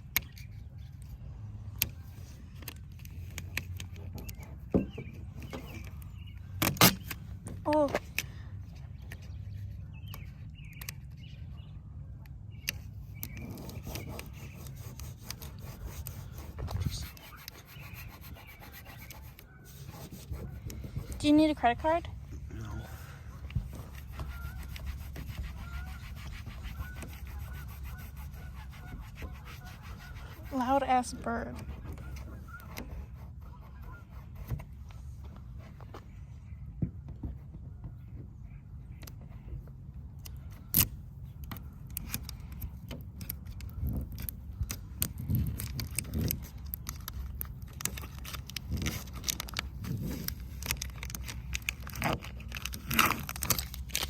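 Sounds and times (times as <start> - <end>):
bird chirping: 3.0 - 7.4, 8.7 - 34.2
rubbing noise: 13.3 - 22.0, 22.9 - 36.0
small objects clicking and scraping: 40.2 - 54.0.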